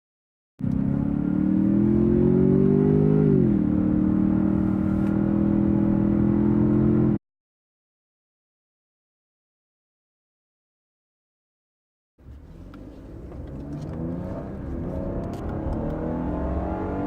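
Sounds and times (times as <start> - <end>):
car engine accelerating: 0.6 - 7.2, 12.2 - 17.0.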